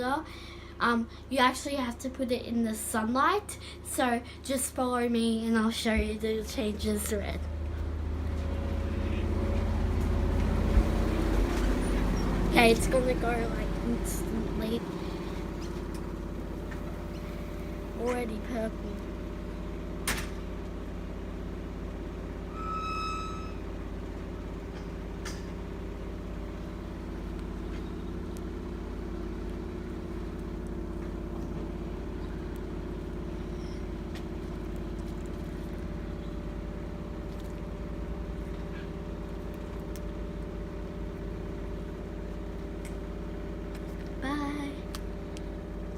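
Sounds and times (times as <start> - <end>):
low mechanical hum: 0.0 - 45.9
short high tone: 22.4 - 23.8.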